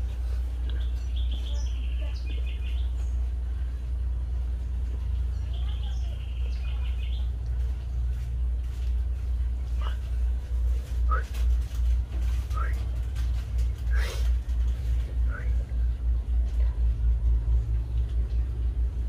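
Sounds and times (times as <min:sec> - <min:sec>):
small birds chirping: 0:00.0 - 0:10.4
steady low rumble: 0:00.0 - 0:19.0.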